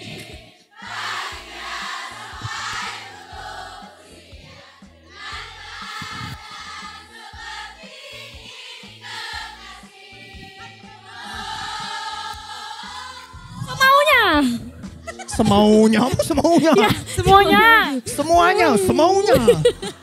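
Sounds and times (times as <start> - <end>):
choir-like singing: 0.0 - 15.4, 16.1 - 20.0
pulsing bass line: 5.7 - 6.5, 13.4 - 20.0.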